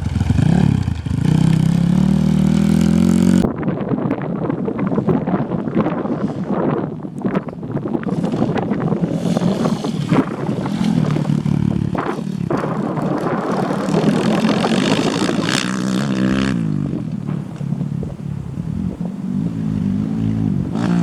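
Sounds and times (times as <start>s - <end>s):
dirt bike engine at high revs: 0.0s - 3.5s, 7.8s - 21.0s.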